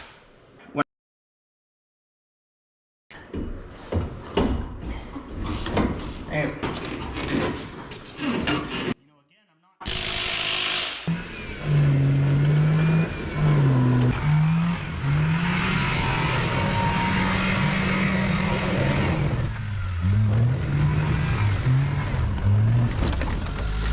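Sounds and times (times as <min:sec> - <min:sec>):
small truck engine revving: 0:11.1 - 0:23.9.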